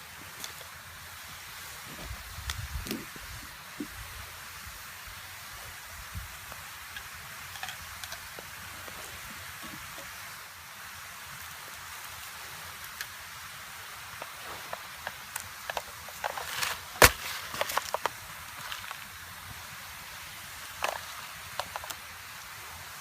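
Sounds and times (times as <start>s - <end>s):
steady hiss: 0.0s - 23.0s
dry wood crackling and snapping: 1.8s - 3.9s, 12.7s - 13.2s, 14.0s - 19.4s, 20.7s - 22.1s.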